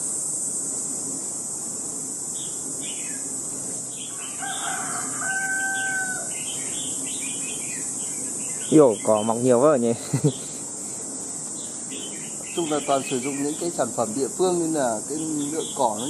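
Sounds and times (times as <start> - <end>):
high insect drone: 0.0 - 16.0
bird's long flat call: 3.9 - 9.1.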